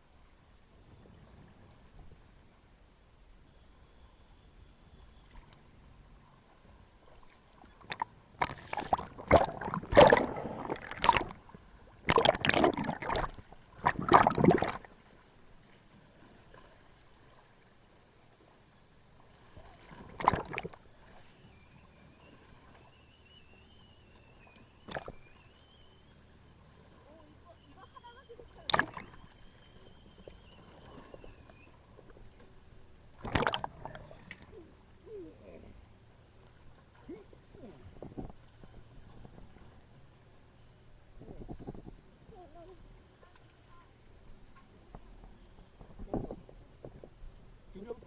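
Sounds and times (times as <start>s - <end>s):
water sloshing and splashing: 6.3s - 23.6s, 24.2s - 34.6s.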